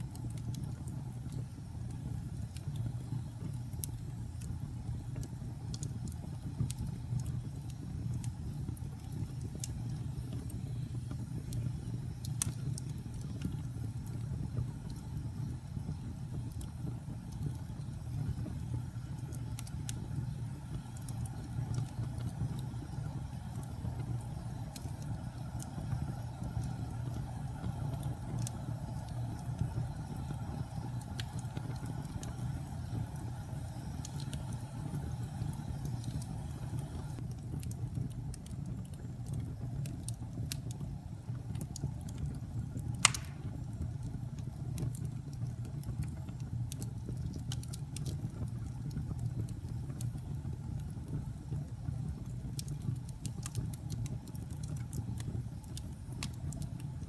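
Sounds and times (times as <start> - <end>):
wood fire crackling: 0.0 - 57.0
sharp loud pop: 43.0 - 43.5.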